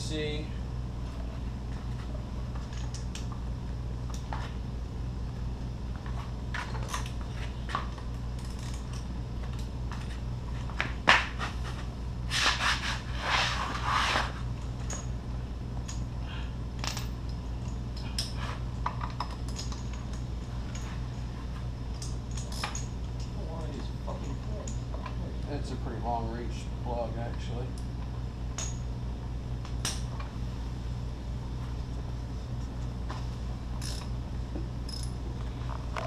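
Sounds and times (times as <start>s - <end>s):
steady low hum: 0.0s - 36.0s
scraping and rustling: 10.0s - 14.5s.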